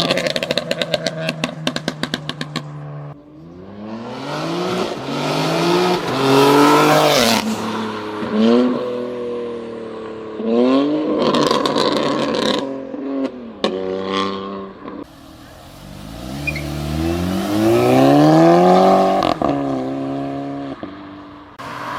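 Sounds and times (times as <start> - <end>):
exhaust crackling pops: 0.0 - 2.8
car engine revving hard: 3.4 - 21.9.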